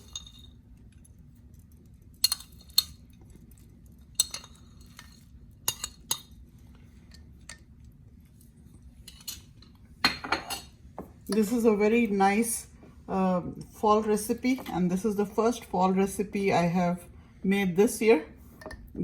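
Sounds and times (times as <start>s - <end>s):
metal spoon clinking on dish: 0.0s - 0.6s, 2.2s - 3.2s, 4.2s - 6.4s, 9.1s - 10.7s.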